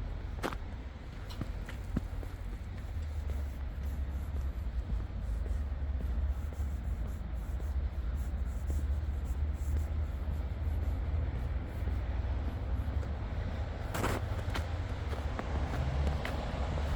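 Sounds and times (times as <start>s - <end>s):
city street rumble: 0.0s - 16.9s
footsteps walking: 0.4s - 6.6s, 10.8s - 16.9s.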